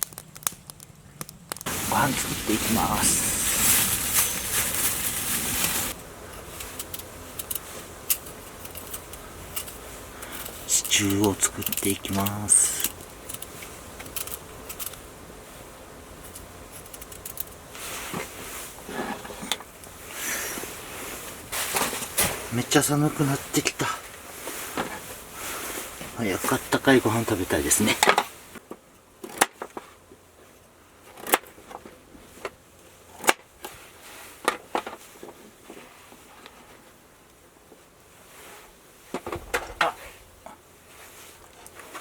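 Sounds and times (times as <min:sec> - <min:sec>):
small clicks: 0:00.0 - 0:01.7
steady low hum: 0:00.1 - 0:29.2
soft rustling: 0:01.6 - 0:14.9, 0:39.9 - 0:42.0.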